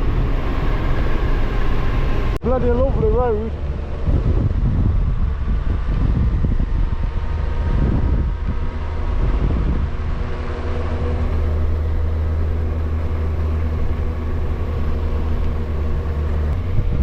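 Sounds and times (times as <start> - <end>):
wind rumble on microphone: 0.0 - 17.0
motorcycle engine running: 1.4 - 17.0.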